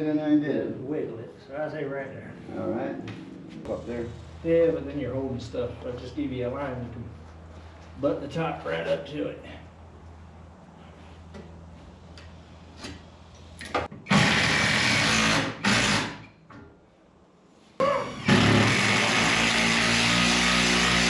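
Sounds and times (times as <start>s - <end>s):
power drill running: 14.1s - 16.3s, 18.1s - 21.0s.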